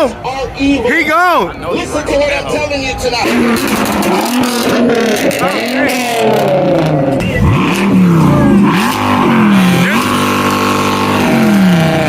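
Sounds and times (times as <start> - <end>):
car engine revving: 3.2 - 12.0.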